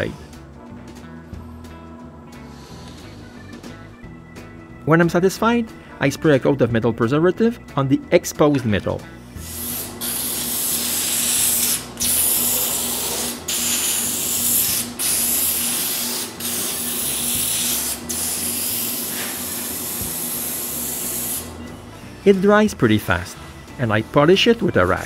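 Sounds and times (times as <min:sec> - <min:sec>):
aerosol can spraying: 0:09.4 - 0:21.6.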